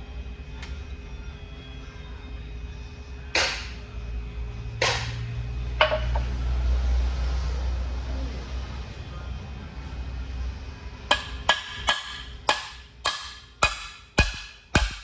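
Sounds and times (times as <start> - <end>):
sharp metallic knocks: 11.1 - 15.0.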